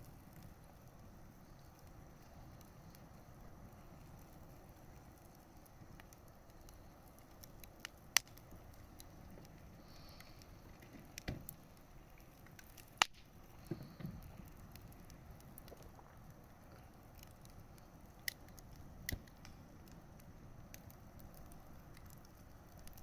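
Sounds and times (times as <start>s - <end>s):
bonfire hissing and crackling: 0.0s - 23.0s
loud sharp fire pops: 12.5s - 14.7s.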